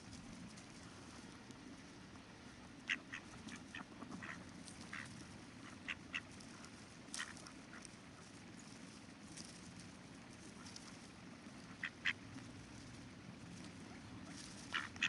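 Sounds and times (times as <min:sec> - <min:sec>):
ducks quacking: 0:02.4 - 0:08.4, 0:10.4 - 0:12.5, 0:13.7 - 0:15.0.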